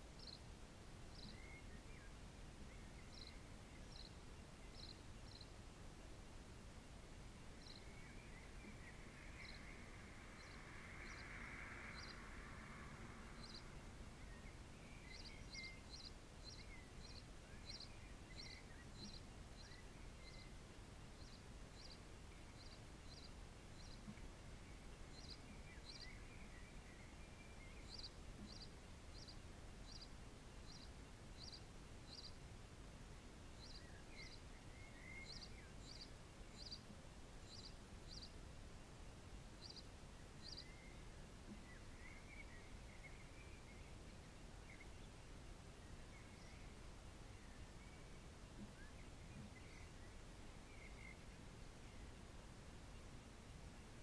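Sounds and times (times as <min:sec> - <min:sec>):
distant small birds chirping: 0:00.0 - 0:54.0
faint bird twittering: 0:00.1 - 0:06.1, 0:06.8 - 0:32.4, 0:33.1 - 0:38.4, 0:39.6 - 0:52.2.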